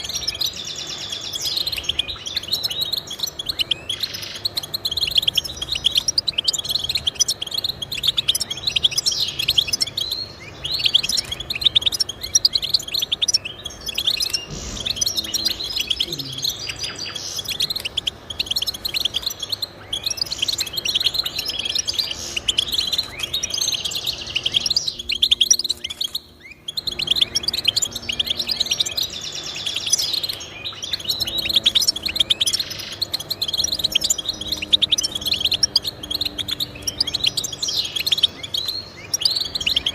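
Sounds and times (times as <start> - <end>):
finch twittering: 0.0 - 39.9.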